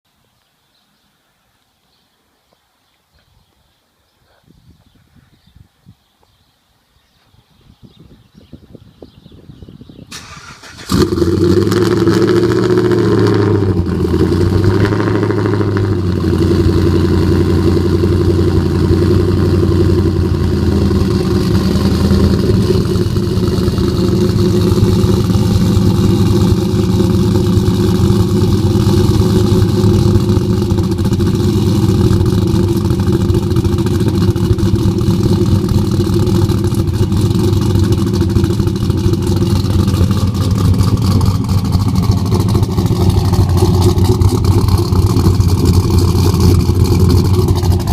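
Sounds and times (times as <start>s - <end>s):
loud lumpy engine idling: 10.9s - 47.9s.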